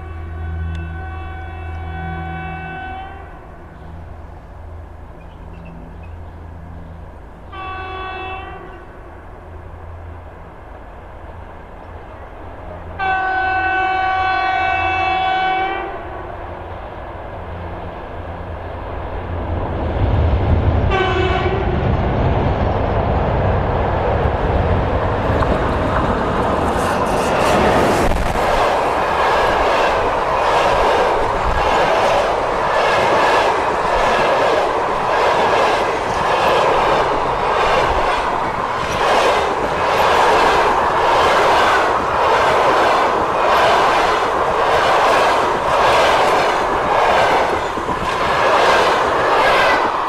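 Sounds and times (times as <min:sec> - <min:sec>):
locomotive warning horn: 0:00.0 - 0:03.9, 0:07.4 - 0:09.1, 0:12.9 - 0:16.3, 0:20.9 - 0:21.8
train rumble: 0:00.0 - 0:50.0.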